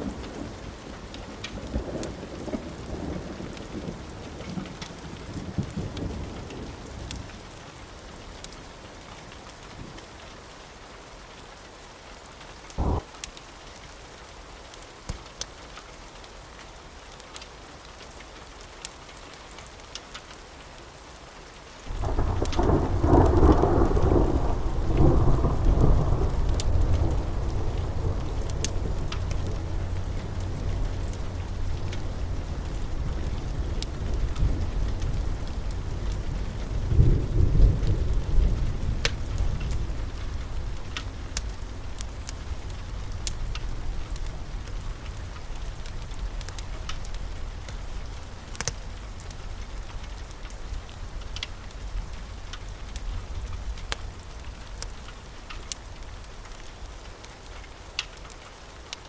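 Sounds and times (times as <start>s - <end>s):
steady rain: 0.0s - 59.0s
thunder rumbling: 12.8s - 13.1s, 21.9s - 51.2s.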